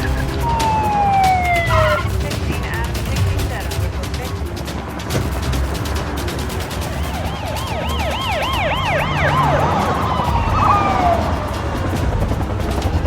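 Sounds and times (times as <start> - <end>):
police siren yelping: 0.0 - 2.6, 6.4 - 13.0
steady low rumble: 0.0 - 13.0.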